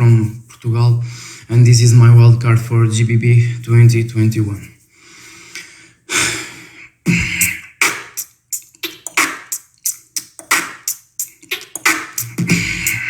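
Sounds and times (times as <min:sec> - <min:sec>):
beatboxing: 0:00.0 - 0:01.8, 0:06.2 - 0:13.0.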